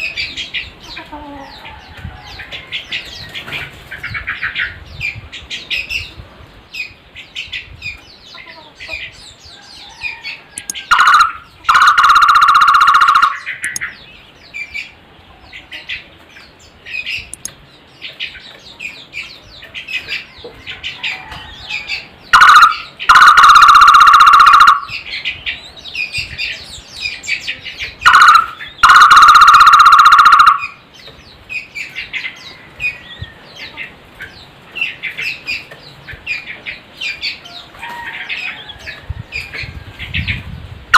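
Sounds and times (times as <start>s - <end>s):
small birds twittering: 0.0s - 40.9s
bird rolling trill: 10.6s - 13.8s, 22.4s - 24.9s, 28.1s - 30.7s.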